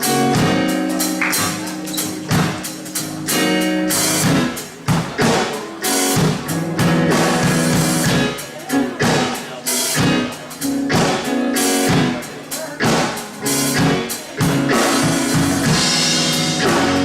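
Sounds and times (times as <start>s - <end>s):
drum kit beat: 0.0s - 17.0s
organ chords: 0.0s - 17.0s.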